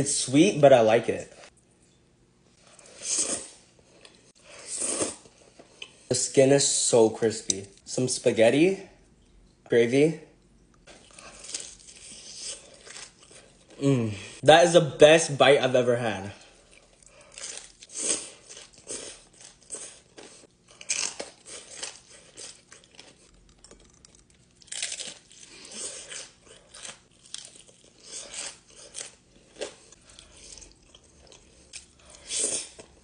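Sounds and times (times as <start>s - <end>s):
chewing crispy fried chicken: 16.6s - 33.0s.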